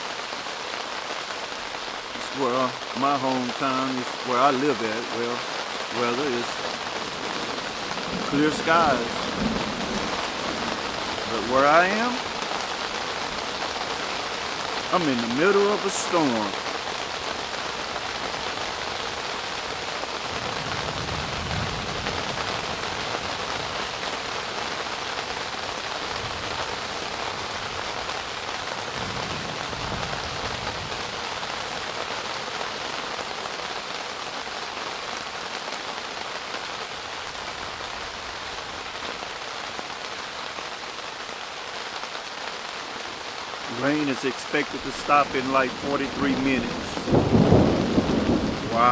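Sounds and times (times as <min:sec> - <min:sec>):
rain falling: 0:00.0 - 0:48.9.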